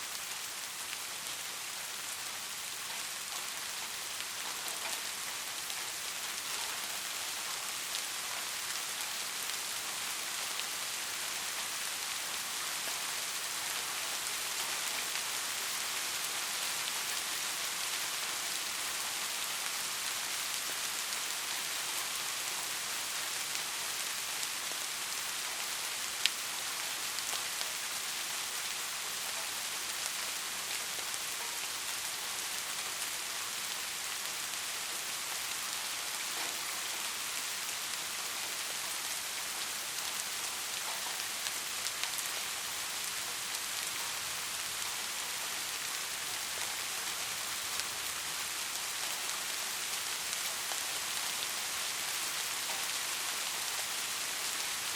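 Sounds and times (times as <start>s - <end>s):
steady rain hiss: 0.0s - 54.9s.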